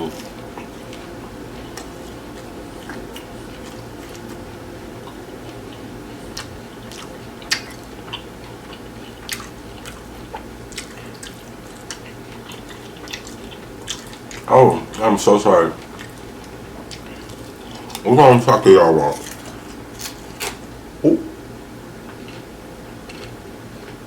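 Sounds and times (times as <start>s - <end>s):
crunchy chewing: 0.0s - 18.1s, 19.0s - 21.4s, 22.1s - 24.0s
low background hum: 0.0s - 24.0s
wet mouth clicks: 21.0s - 21.4s.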